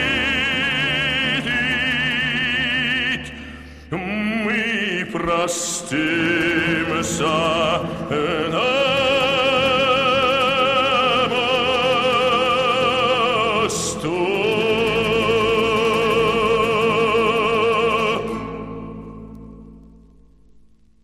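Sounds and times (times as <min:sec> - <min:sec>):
male operatic singing: 0:00.0 - 0:19.6
singer breath: 0:03.4 - 0:03.9.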